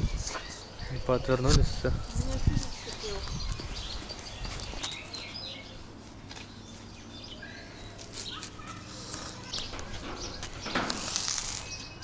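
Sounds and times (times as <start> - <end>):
birds chirping: 0.0 - 12.0
faint outdoor background noise: 0.0 - 12.0
brief rustle: 8.0 - 11.8.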